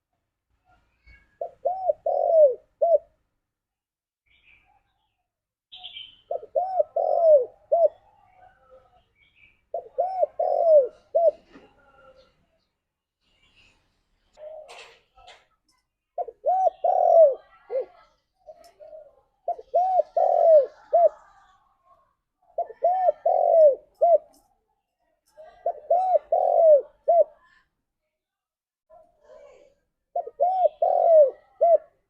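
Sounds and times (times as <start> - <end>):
dove cooing: 1.1 - 3.2, 5.8 - 8.8, 9.7 - 11.7, 16.2 - 21.5, 22.4 - 24.4, 25.5 - 27.4, 30.1 - 32.0.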